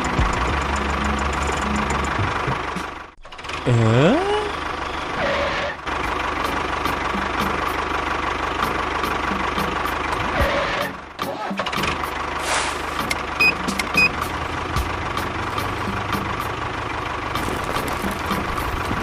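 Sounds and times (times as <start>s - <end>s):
small motor ticking: 0.0s - 2.5s.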